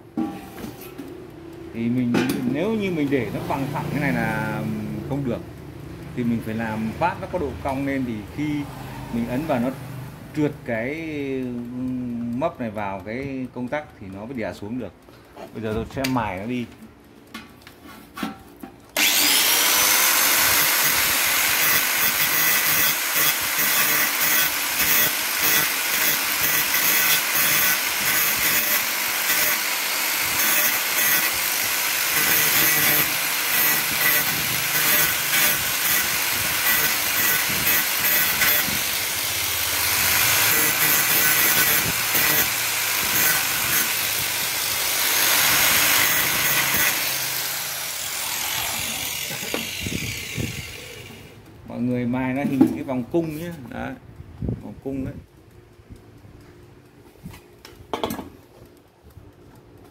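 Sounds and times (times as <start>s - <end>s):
electric rotary grinder grinding: 19.0s - 51.5s.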